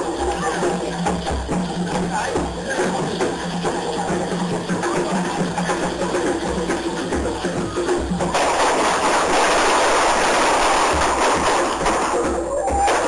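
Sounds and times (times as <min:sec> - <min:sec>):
firework fountains hissing and crackling: 0:00.0 - 0:13.0
percussion-driven music: 0:00.0 - 0:13.0.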